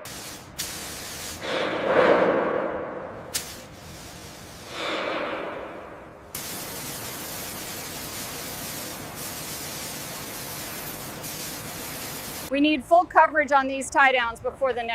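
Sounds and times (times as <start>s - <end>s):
hissing noise: 3.2s - 12.5s.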